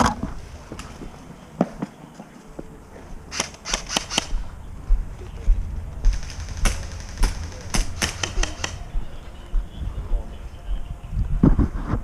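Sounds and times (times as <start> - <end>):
airsoft guns firing: 3.3 - 4.4, 6.0 - 8.9.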